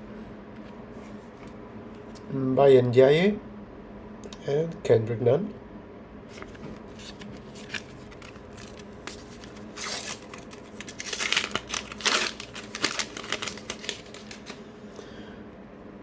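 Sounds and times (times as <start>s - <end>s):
wrapper tearing and crinkling: 7.0s - 14.6s.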